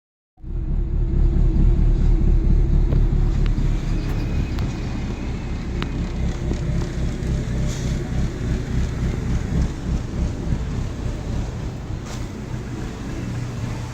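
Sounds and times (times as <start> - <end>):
car engine running: 0.4 - 13.9.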